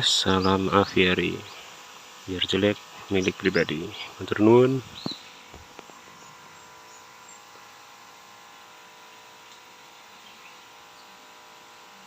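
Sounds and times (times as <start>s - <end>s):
outdoor background hiss: 0.0s - 12.0s
bird chirps: 4.9s - 7.5s, 10.2s - 11.2s.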